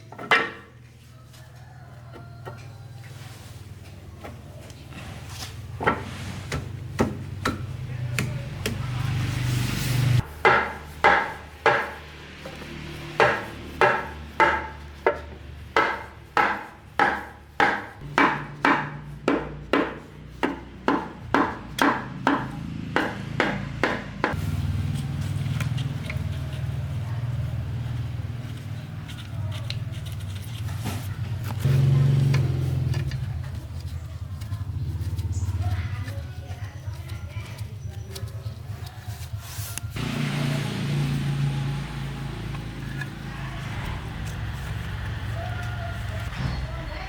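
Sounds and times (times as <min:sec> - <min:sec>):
scattered knocks: 0:13.2 - 0:24.4.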